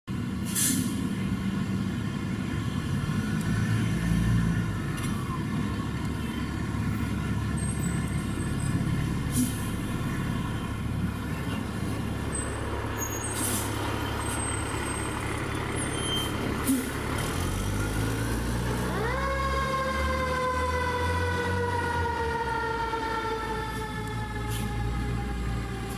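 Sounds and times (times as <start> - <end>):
diesel engine running: 0.1 - 25.9
air brake hisses: 0.4 - 1.0, 9.3 - 9.7, 13.1 - 13.8, 16.6 - 17.0
fire truck siren: 17.4 - 25.9.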